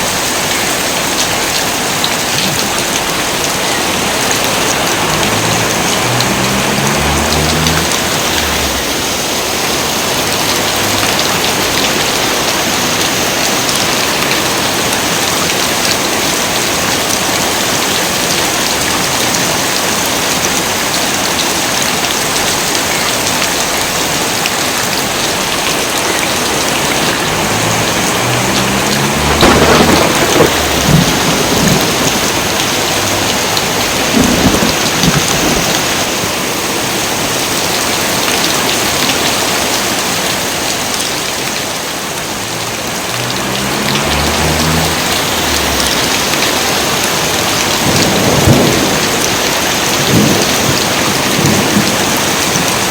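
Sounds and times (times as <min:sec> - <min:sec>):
heavy rain pouring: 0:00.0 - 0:52.9
thunder rumbling: 0:02.8 - 0:13.2, 0:26.2 - 0:36.1, 0:42.9 - 0:52.6.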